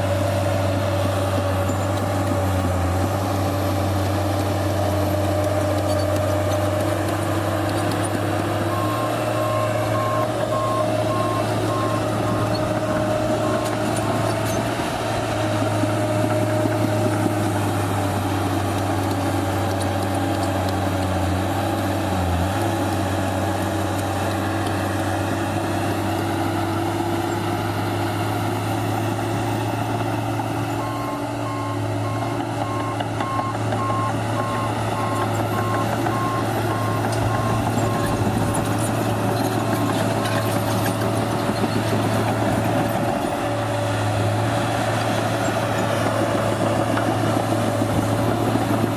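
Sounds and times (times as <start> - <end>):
diesel engine running: 0.0 - 48.9
reversing alarm beeping: 8.6 - 14.7, 30.8 - 38.7.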